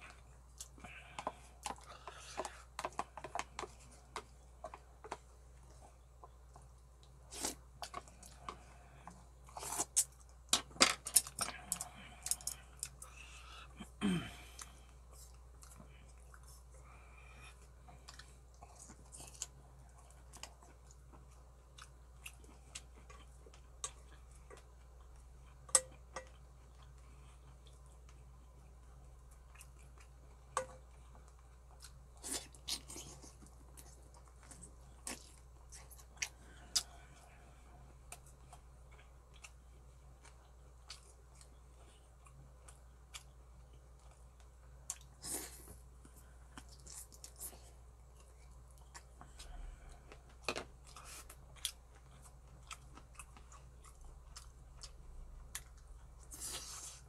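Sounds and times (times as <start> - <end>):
person chewing wetly: 14.4 - 57.0.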